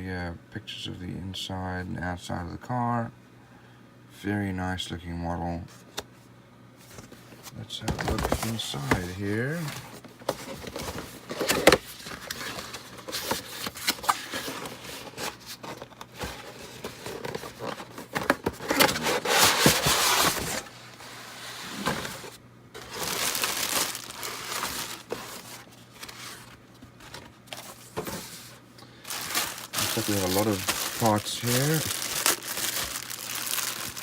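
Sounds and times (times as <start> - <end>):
plastic bags crinkling: 21.7 - 34.0.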